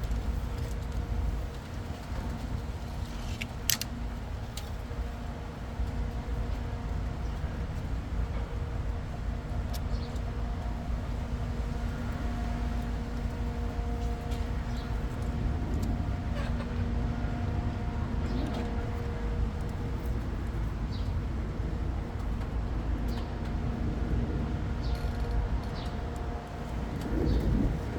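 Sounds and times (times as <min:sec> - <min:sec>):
mechanical rumble with droning hum: 0:00.0 - 0:27.9.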